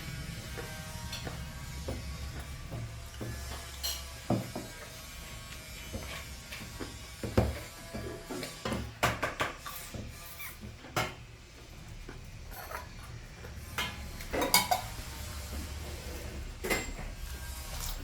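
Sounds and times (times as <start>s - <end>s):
dishes and utensils clinking: 0.6s - 5.1s, 12.5s - 18.0s.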